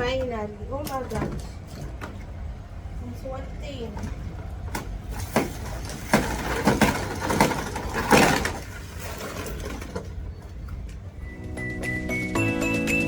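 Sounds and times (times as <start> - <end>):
kitchen things clattering: 5.1 - 10.2
short scraping clatters: 5.1 - 10.2.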